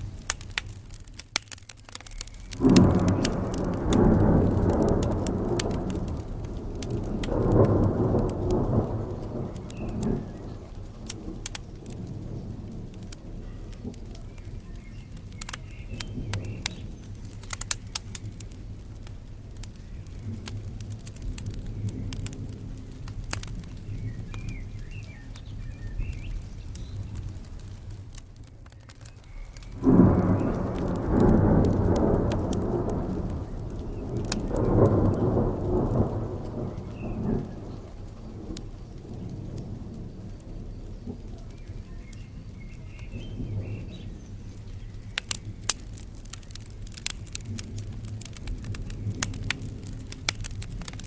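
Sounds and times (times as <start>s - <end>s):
steady rain: 0.0s - 51.0s
wood fire crackling: 0.0s - 51.0s
bird chirping: 2.0s - 3.4s, 13.4s - 18.3s, 23.8s - 27.3s, 40.6s - 45.7s
rolling thunder: 2.4s - 51.0s.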